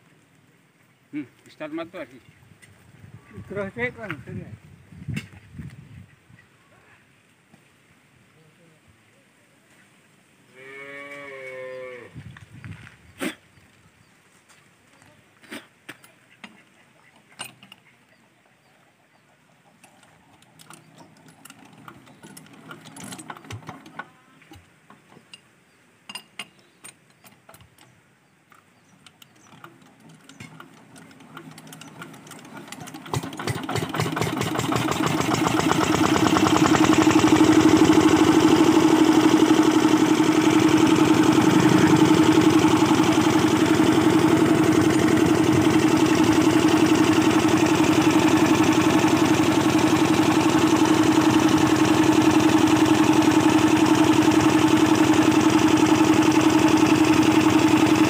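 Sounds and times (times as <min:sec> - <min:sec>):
diesel generator engine running: 0:30.0 - 0:58.0.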